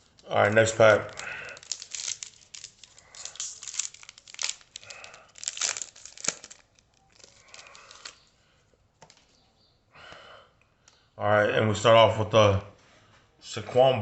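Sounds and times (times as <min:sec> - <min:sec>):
plastic wrapper crinkling and tearing: 0:00.0 - 0:08.3.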